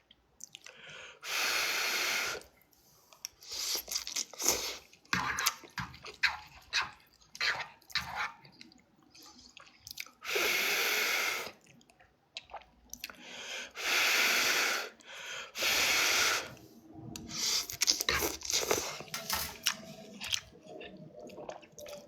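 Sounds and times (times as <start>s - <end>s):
breath blowing on noodles: 1.2s - 2.4s, 10.2s - 11.6s, 13.6s - 16.6s
chewing and slurping noodles: 3.2s - 14.9s, 15.6s - 22.0s.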